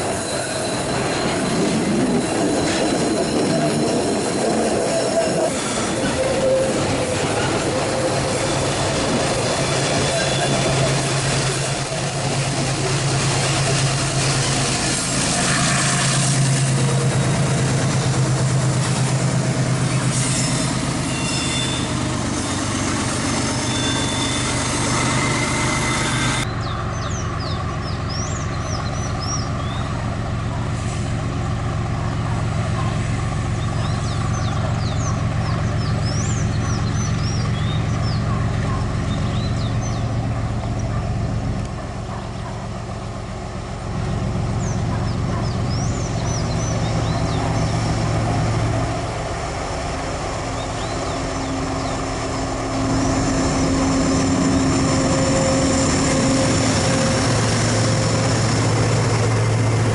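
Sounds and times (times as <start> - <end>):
locomotive engine drone: 0.0 - 59.9
rail and wheel noise: 0.0 - 59.9
birds chirping: 26.4 - 30.0, 33.5 - 41.0, 44.4 - 48.8, 50.5 - 57.6.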